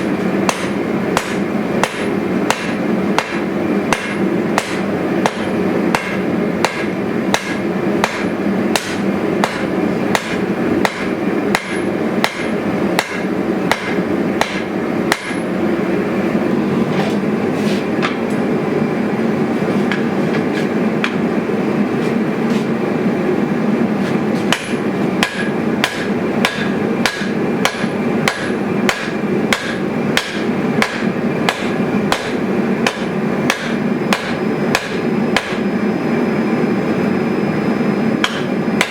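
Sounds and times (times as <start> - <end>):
hammer blows on anvil: 0.4 - 15.5, 24.5 - 35.7, 38.2 - 38.9.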